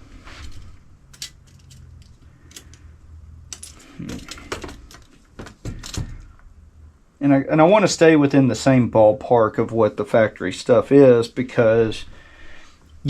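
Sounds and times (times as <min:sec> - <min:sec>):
metal tools clinking on workbench: 0:00.5 - 0:02.8, 0:03.5 - 0:05.1.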